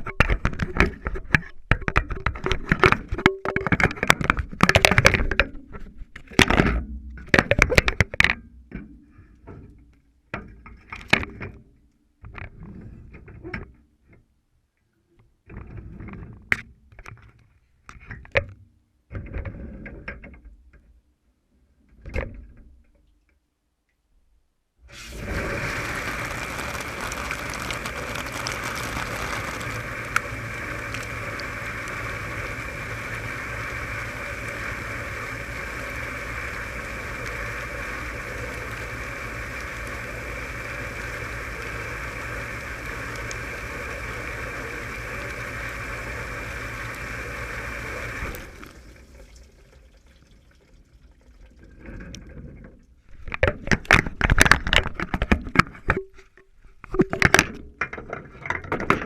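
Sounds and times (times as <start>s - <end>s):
knocks and clatter: 0.0s - 9.6s
dishwasher running: 24.9s - 49.8s.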